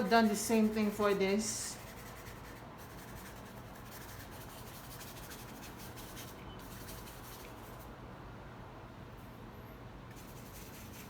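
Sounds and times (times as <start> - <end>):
paintbrush scratching on canvas: 0.0 - 7.9, 10.1 - 11.0.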